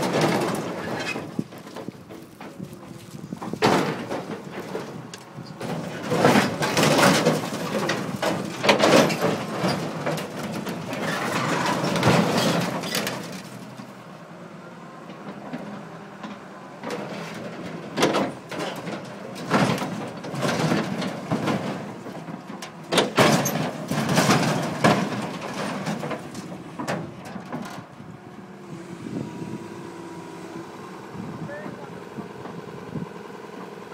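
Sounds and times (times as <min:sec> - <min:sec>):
sheet metal crunching and scraping: 0:00.0 - 0:14.0, 0:16.8 - 0:28.4.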